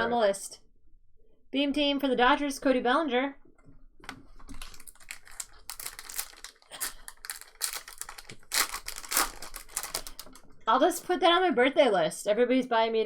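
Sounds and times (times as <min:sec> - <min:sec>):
wrappers crinkling and tearing: 0:04.4 - 0:10.4.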